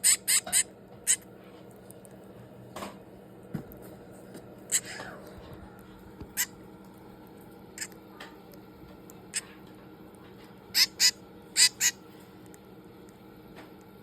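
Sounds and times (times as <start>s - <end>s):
baby bird chirping: 0.0s - 1.3s, 4.7s - 5.2s, 6.3s - 6.6s, 7.8s - 8.0s, 10.7s - 12.0s.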